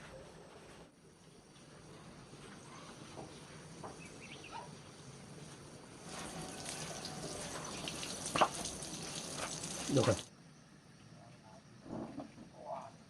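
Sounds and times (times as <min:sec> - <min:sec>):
water running: 0:05.5 - 0:10.3.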